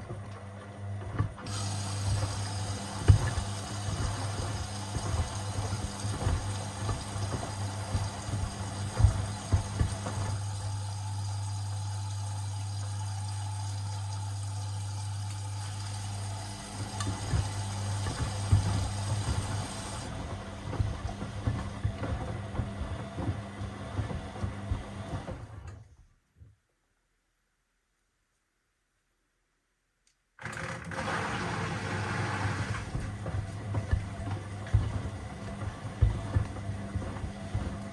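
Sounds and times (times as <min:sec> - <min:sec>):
washing machine motor hum: 0:00.0 - 0:26.0, 0:30.4 - 0:37.9
shoes knocking in drum: 0:02.2 - 0:10.8, 0:16.8 - 0:25.4, 0:32.8 - 0:37.9.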